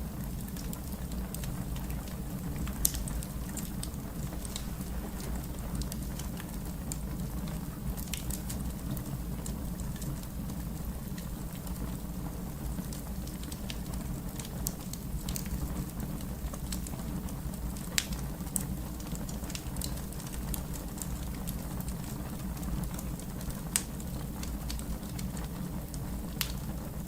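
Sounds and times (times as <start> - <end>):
fire crackling and popping: 0.0 - 27.0.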